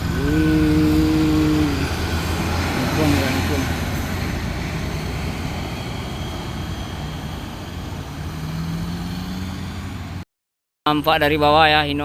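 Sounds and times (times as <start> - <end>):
diesel engine labouring: 0.0 - 10.2.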